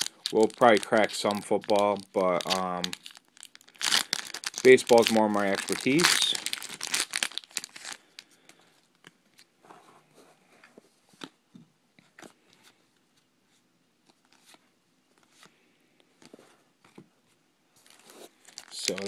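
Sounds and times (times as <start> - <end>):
cards clicking and rustling: 17.9 - 19.0.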